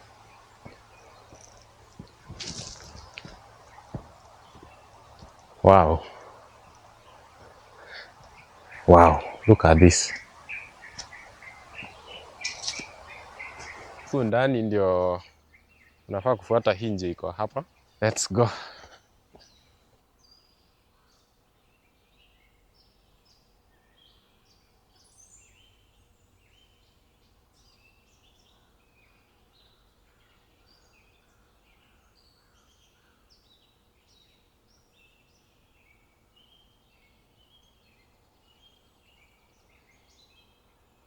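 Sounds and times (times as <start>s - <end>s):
birds chirping: 0.0s - 20.5s.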